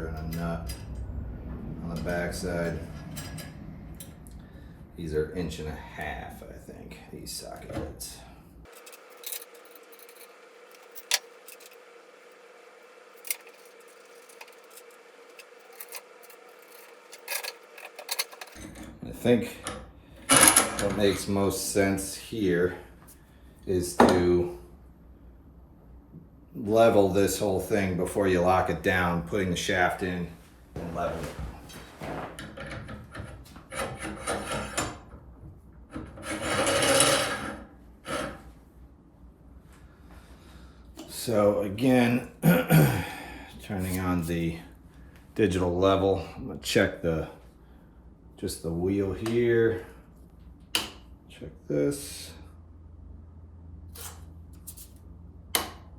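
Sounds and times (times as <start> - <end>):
steady low hum: 0.0 - 32.3
steel hardware clicking: 8.7 - 12.4, 13.1 - 18.9
metal shaft scraping in bearings: 8.7 - 19.3, 32.8 - 35.0, 36.0 - 38.4.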